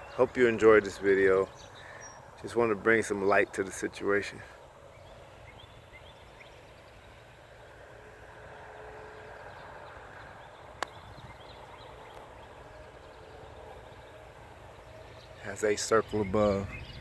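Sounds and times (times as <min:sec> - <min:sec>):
bird chirps: 0:00.0 - 0:02.5, 0:09.1 - 0:17.0.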